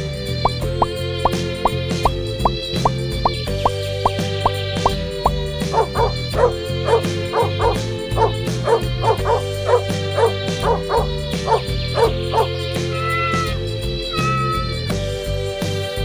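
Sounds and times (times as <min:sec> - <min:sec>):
background music: 0:00.0 - 0:16.0
small dog yipping: 0:05.8 - 0:13.5.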